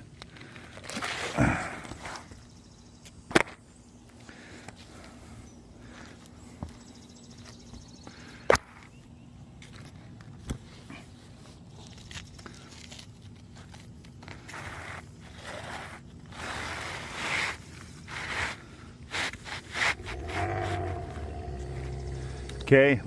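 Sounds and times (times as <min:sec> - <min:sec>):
shingles scraping against each other: 0:14.2 - 0:20.9.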